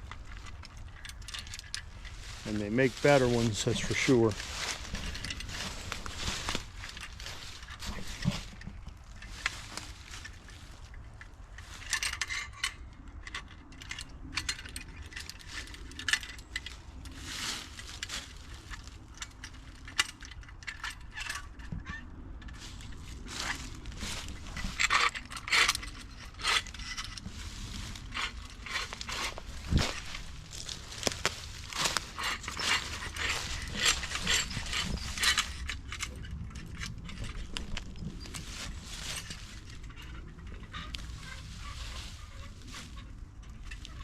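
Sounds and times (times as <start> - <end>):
metal hardware clinking: 28.1 - 40.0.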